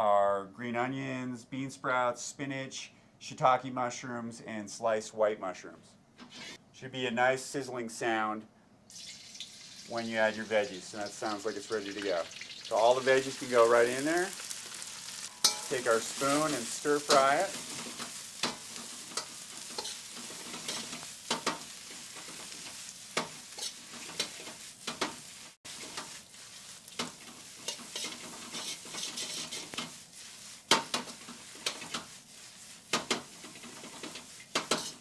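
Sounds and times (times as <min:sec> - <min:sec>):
spoon scraping a wok: 0:06.2 - 0:06.6, 0:15.2 - 0:35.0
vegetables sizzling in oil: 0:08.9 - 0:35.0.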